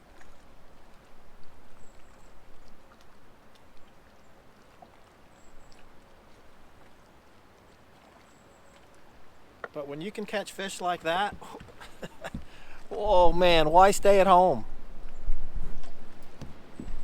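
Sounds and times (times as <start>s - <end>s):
water lapping at boat hull: 0.0s - 17.0s
wind rumbling on microphone: 12.3s - 17.0s.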